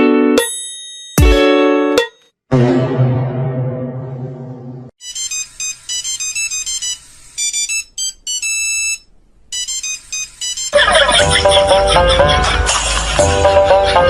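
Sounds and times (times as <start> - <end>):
high plinking ringtone melody: 9.6 - 11.1.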